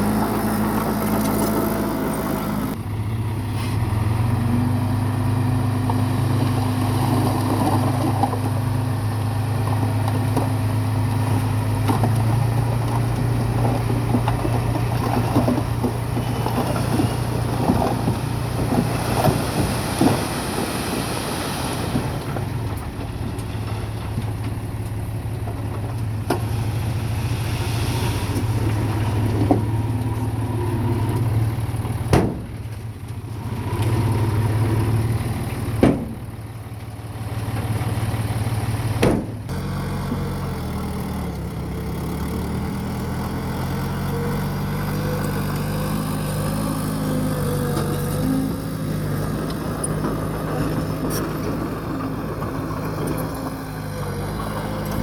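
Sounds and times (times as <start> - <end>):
heavy machine engine running: 0.0 - 55.0
sharp knocks: 39.0 - 39.4.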